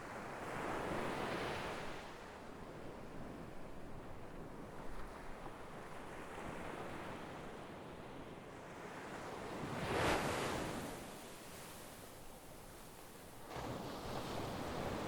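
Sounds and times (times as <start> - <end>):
surf washing on shore: 9.6 - 11.7, 13.4 - 15.0.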